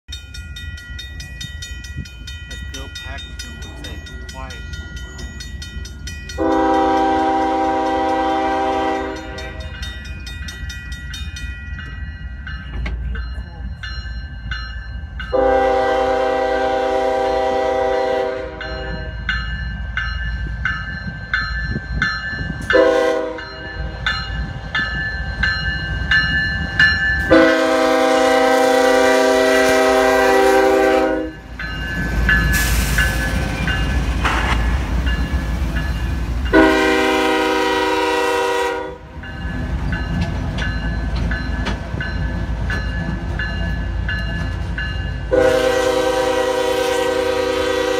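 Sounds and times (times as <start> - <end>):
crossing bell ringing: 0.0 - 47.9
low rumble of train: 0.1 - 47.9
locomotive horn blasts: 6.4 - 9.7, 15.3 - 19.2, 22.7 - 23.6, 27.3 - 31.4, 36.5 - 39.1, 45.3 - 47.9.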